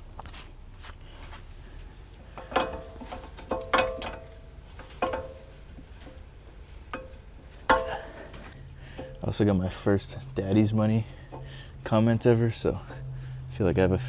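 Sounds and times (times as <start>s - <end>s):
metal parts clanking: 2.3s - 9.3s.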